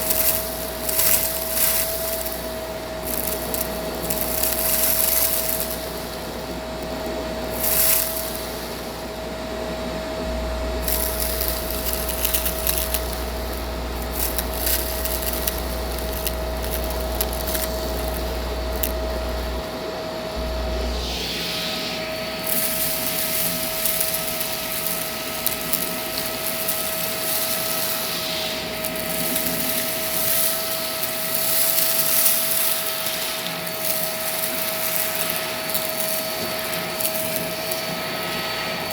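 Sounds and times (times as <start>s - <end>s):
vacuum cleaner running: 0.0s - 38.9s
higher motor whine: 5.8s - 24.8s
dirt crackling in vacuum: 10.2s - 19.6s.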